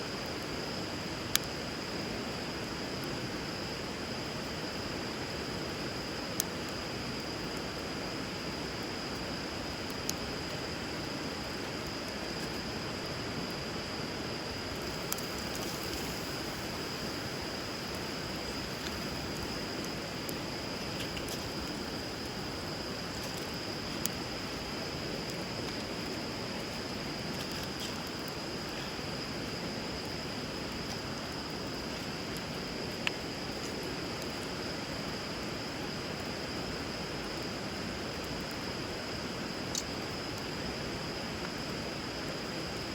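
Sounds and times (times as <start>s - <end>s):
wood fire crackling and popping: 0.0s - 41.6s
high insect trill: 0.0s - 42.9s.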